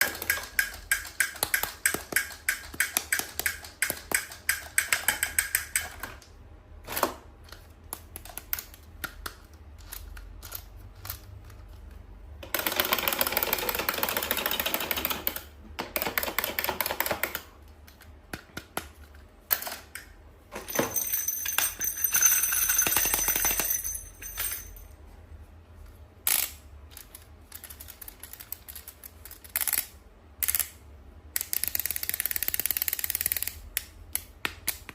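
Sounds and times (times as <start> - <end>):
rapid clicks and taps on plastic: 0.0 - 6.3, 12.4 - 19.7.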